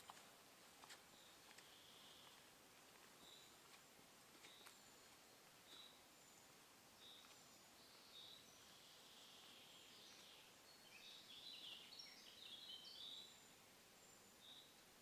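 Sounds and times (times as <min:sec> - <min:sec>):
faint birdsong: 0:00.0 - 0:15.0.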